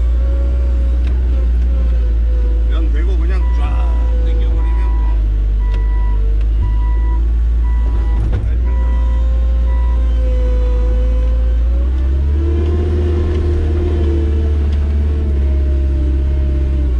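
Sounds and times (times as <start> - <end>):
loader engine running under load: 0.0 - 16.9
reversing alarm beeps: 3.4 - 10.1.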